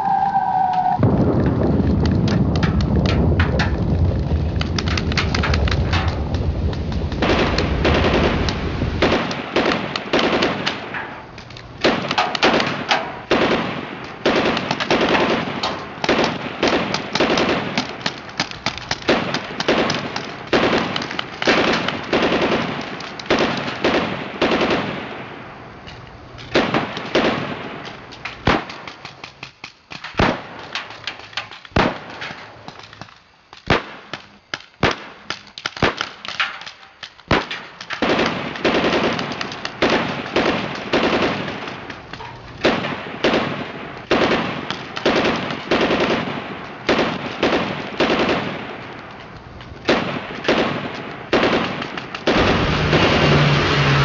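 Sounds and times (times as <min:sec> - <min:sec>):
sharp cracks and pops: 0:00.0 - 0:54.0.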